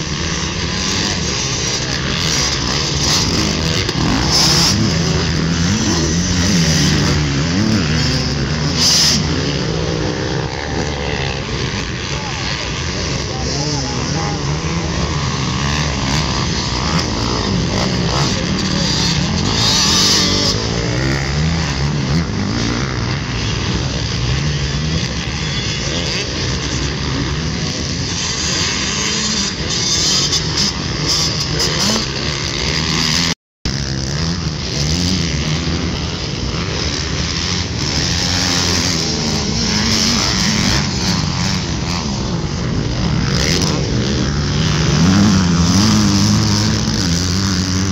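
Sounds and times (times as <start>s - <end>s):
dirt bike engines revving: 0.0s - 47.9s.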